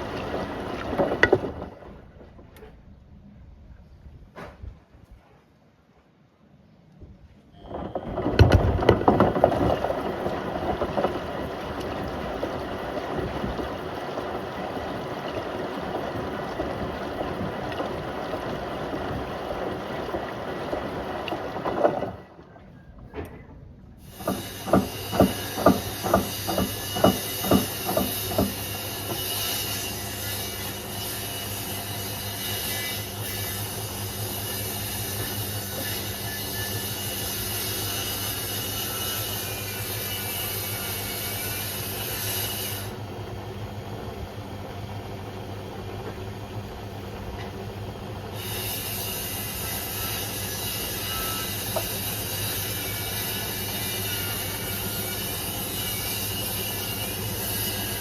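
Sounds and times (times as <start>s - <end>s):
washing machine running: 0.0s - 2.1s, 7.6s - 58.0s.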